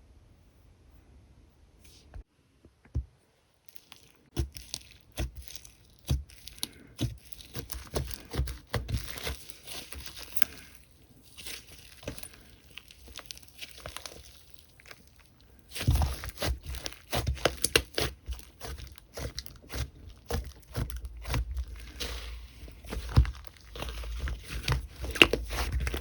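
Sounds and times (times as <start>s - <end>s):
slime squished by hand: 3.7s - 26.0s.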